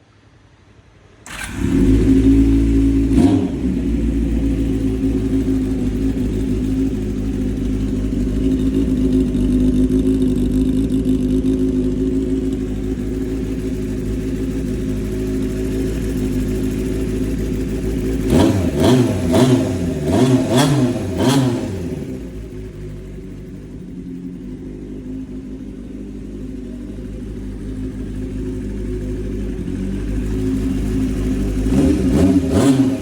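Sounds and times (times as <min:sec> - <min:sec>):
motorcycle engine starting and idling: 0:01.2 - 0:33.0.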